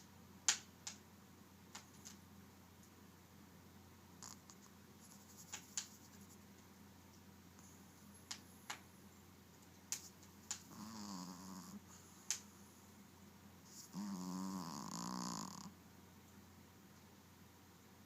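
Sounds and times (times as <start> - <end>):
dog snoring: 4.2 - 4.6, 10.6 - 12.2, 13.7 - 15.8.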